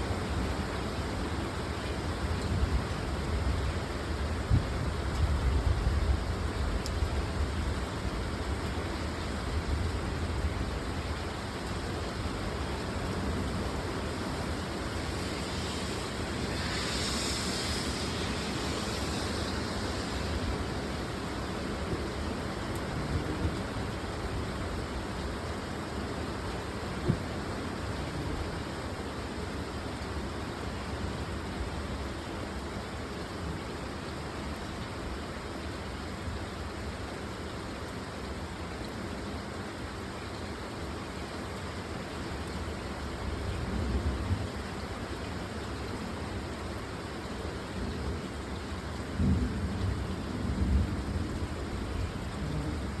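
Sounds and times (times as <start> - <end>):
heavy rain hissing: 0.0 - 53.0
low rumbling thunder: 49.1 - 53.0.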